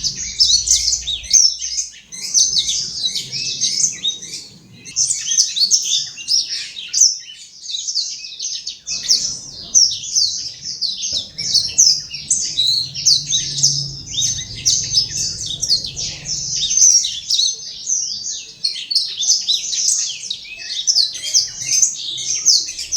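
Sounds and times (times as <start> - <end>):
faint low hum: 0.0 - 5.2, 8.8 - 18.7
bird twittering song: 0.0 - 22.9.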